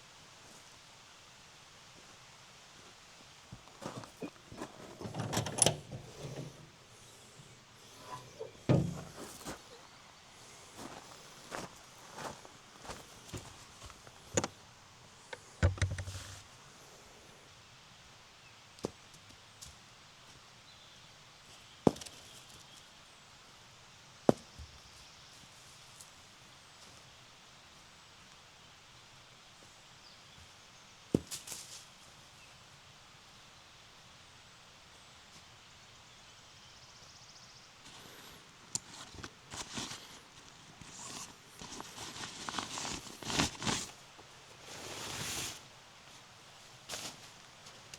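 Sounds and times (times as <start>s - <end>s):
quiet outdoor ambience: 0.0s - 47.9s
rustling and handling noise: 3.5s - 14.6s, 15.3s - 16.6s, 37.9s - 47.9s.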